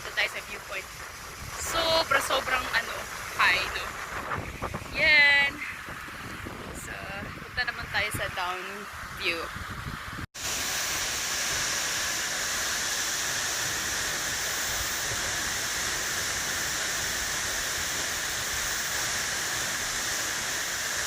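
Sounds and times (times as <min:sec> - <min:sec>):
waterfall rushing: 0:00.0 - 0:06.0, 0:10.4 - 0:21.0.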